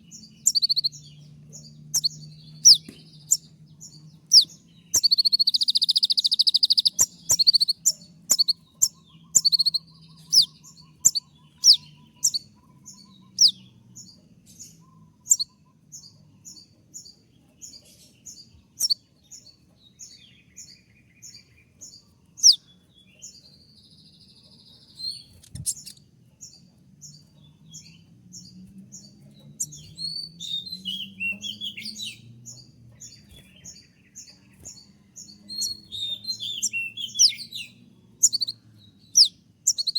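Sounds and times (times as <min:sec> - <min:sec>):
sunbird calling: 0:00.0 - 0:13.8, 0:14.5 - 0:16.1, 0:29.0 - 0:39.9.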